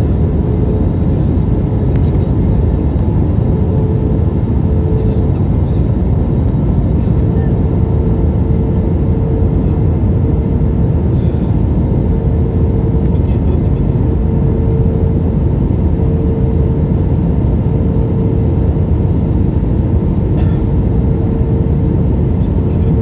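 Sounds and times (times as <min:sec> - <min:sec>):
airplane engines and airflow roar: 0:00.0 - 0:23.0
constant cabin hum: 0:00.0 - 0:23.0.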